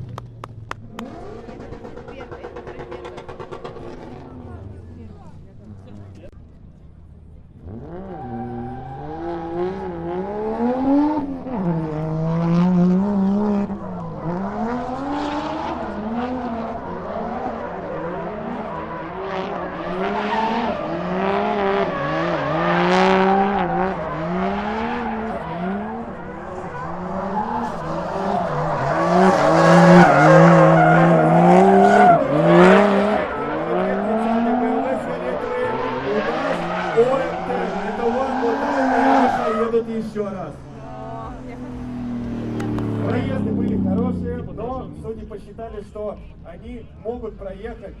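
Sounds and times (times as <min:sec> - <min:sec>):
car engines revving: 0:00.0 - 0:48.0
tyres screeching: 0:16.8 - 0:44.8.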